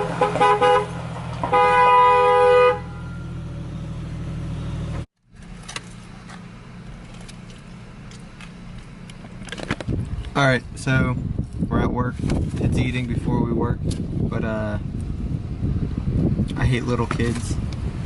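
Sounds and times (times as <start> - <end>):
car horn toot: 0.0 - 3.4
car engine running: 0.0 - 18.0.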